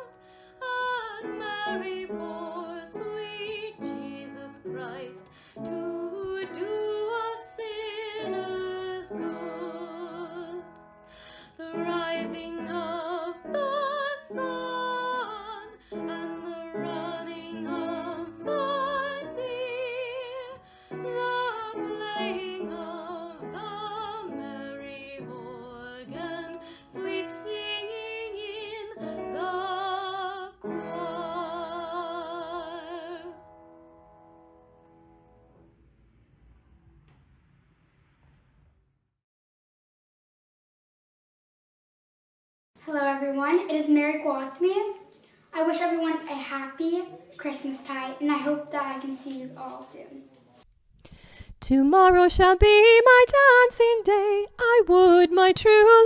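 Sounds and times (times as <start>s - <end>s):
woman singing a carol: 0.0s - 10.7s, 11.5s - 33.4s, 51.6s - 56.0s.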